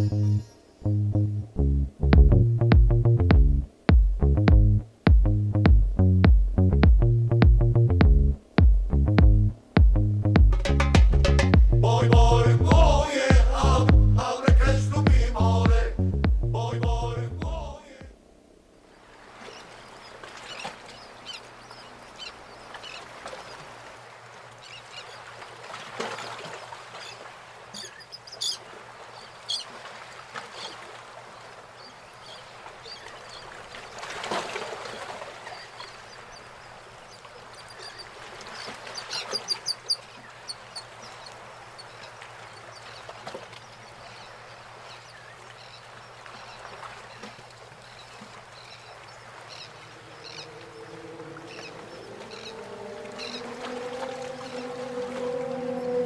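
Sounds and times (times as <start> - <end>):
faint steady hum: 11.6 - 19.2
birds chirping and calling: 47.9 - 56.0.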